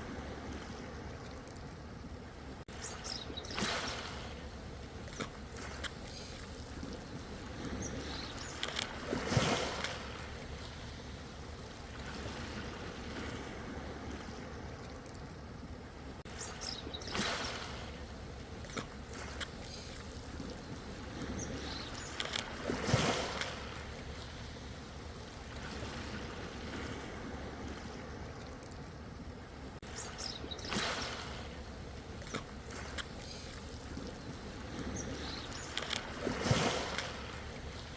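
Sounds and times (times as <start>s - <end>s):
low wash of sea: 0.0s - 37.9s
ocean water splashing: 0.0s - 37.9s.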